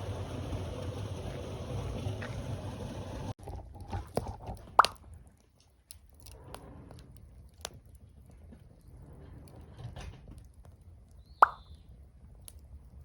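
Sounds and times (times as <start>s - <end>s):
low rumbling noise: 0.0s - 4.0s
campfire crackling and popping: 0.0s - 13.0s.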